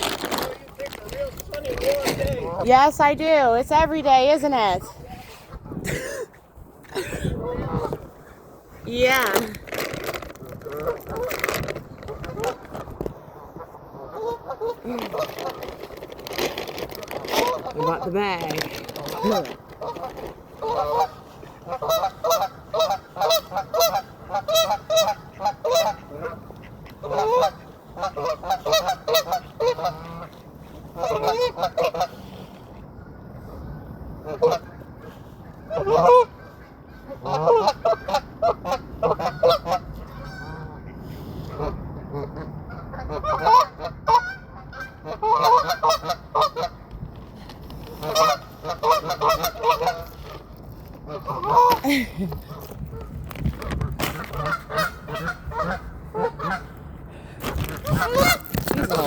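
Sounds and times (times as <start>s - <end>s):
geese honking: 13.2s - 15.4s, 17.4s - 32.4s, 34.2s - 46.8s, 48.0s - 51.8s, 54.2s - 56.9s, 57.8s - 59.0s.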